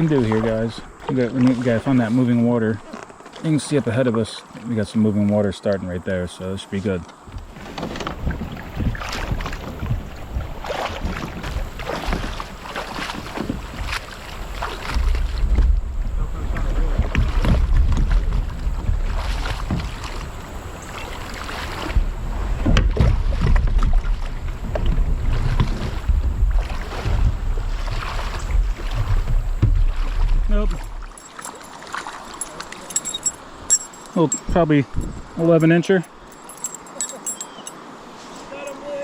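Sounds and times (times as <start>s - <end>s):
water splashing around kayak: 0.0s - 39.0s
wind buffeting microphone: 7.2s - 31.1s, 33.0s - 35.6s.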